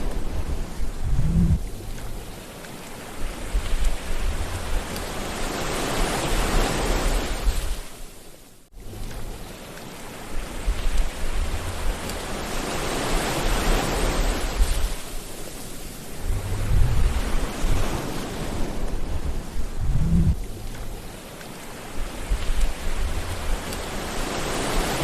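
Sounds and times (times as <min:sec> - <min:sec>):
low rumbling surges: 0:00.0 - 0:02.4, 0:03.2 - 0:05.4, 0:10.4 - 0:21.2, 0:21.9 - 0:25.0
sea waves washing in: 0:00.0 - 0:25.0.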